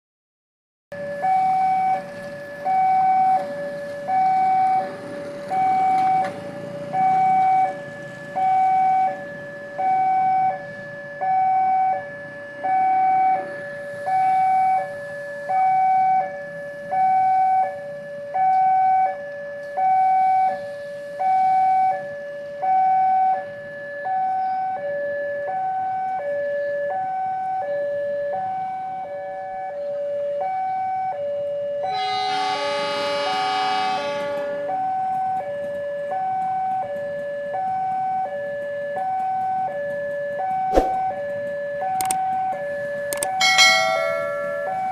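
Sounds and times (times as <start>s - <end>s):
level-crossing two-tone alarm: 1.0s - 19.2s, 30.4s - 38.4s, 41.2s - 44.9s.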